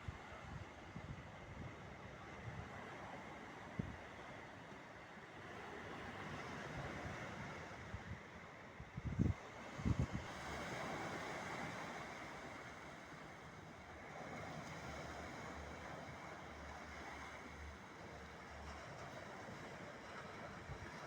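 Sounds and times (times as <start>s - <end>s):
waves washing on beach: 0.2s - 21.0s
wind buffeting microphone: 6.8s - 10.8s.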